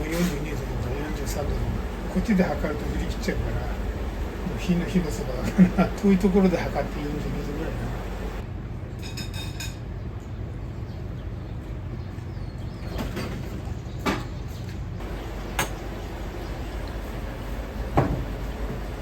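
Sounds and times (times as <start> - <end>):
kitchen low roar: 0.0 - 8.5, 15.0 - 19.0.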